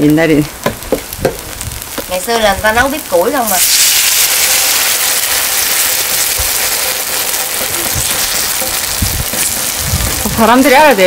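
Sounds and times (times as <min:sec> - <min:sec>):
food frying in hot oil: 0:00.0 - 0:11.0.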